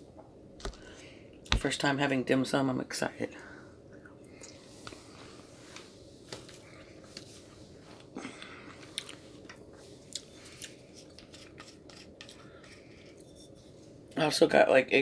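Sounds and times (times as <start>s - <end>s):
person chewing: 8.3s - 9.2s.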